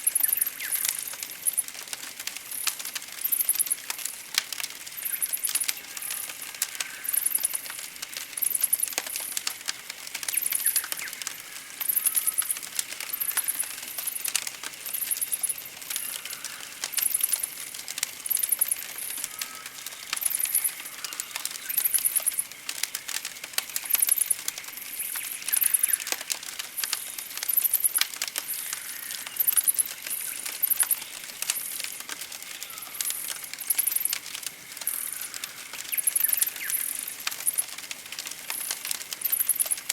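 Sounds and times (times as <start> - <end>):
campfire crackling and popping: 0.0 - 39.9
birds chirping: 10.2 - 17.4, 23.8 - 34.2, 34.8 - 37.7.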